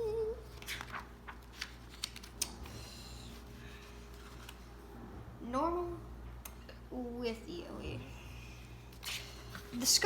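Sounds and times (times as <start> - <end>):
book pages rustling: 0.4 - 4.8
paper clicks: 0.6 - 2.6.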